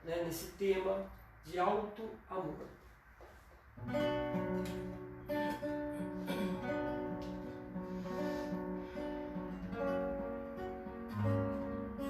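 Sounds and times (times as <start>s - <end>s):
acoustic guitar strumming chords: 3.8s - 12.0s.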